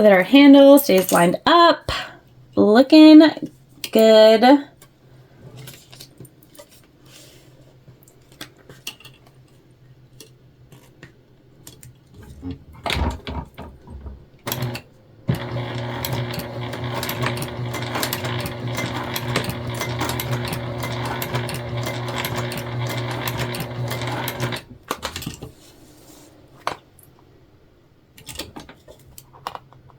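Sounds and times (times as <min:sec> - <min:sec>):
sewing machine running: 0:14.5 - 0:24.8.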